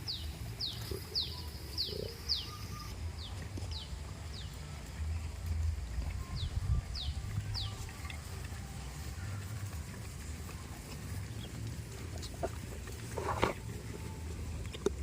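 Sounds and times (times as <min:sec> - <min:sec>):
small bird chirping: 0:00.0 - 0:04.5
steady low rumble: 0:03.0 - 0:15.0.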